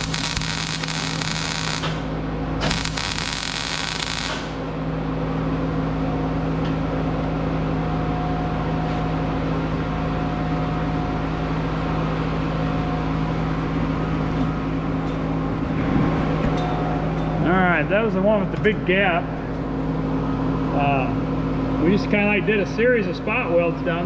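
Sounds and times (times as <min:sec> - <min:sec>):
dense welding noise: 0:00.0 - 0:06.0, 0:07.0 - 0:24.0
welding machine hum: 0:00.0 - 0:06.0.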